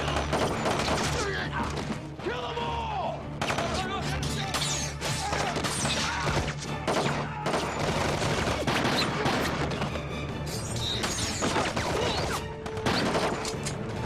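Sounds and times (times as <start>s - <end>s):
rapid gunfire: 0.0s - 1.3s, 3.4s - 3.9s, 5.2s - 9.9s, 11.4s - 13.5s
dramatic music score: 0.0s - 14.0s.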